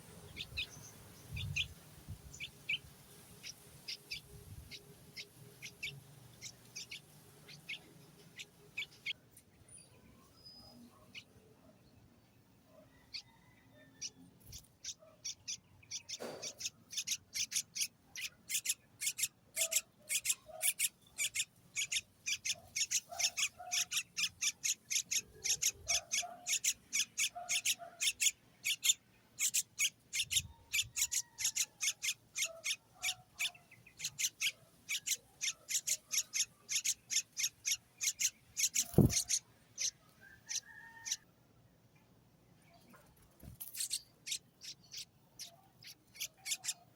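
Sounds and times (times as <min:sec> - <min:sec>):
baby bird raspy chirps: 0:02.4 - 0:09.2, 0:14.0 - 0:41.2, 0:43.6 - 0:46.9.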